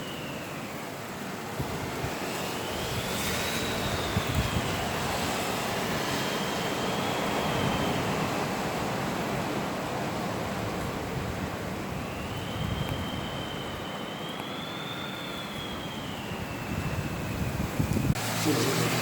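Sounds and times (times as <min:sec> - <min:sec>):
faint high whistle: 0:00.0 - 0:01.1, 0:02.2 - 0:08.8, 0:11.8 - 0:17.6
heavy rain: 0:00.0 - 0:19.0
wind gusts: 0:00.0 - 0:19.0.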